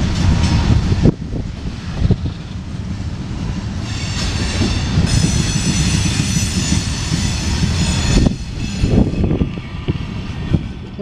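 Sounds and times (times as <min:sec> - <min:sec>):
freight train rumbling past: 0:00.0 - 0:11.0
train wheel clacks: 0:03.5 - 0:09.8.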